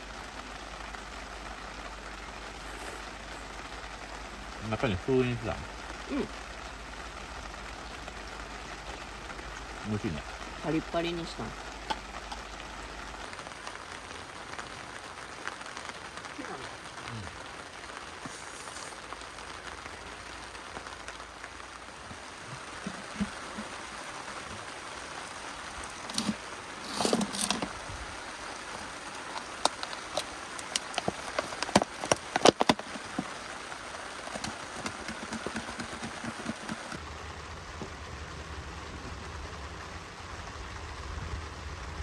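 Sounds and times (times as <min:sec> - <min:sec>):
steady rain: 0:00.0 - 0:42.0
sharp clicks and knocks: 0:29.2 - 0:33.3, 0:34.2 - 0:37.0.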